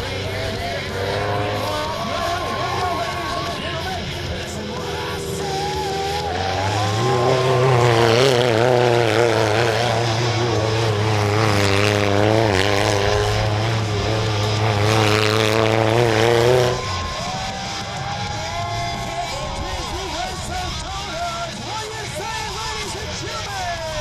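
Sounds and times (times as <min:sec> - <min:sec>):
toy truck engine revving: 0:00.0 - 0:17.6.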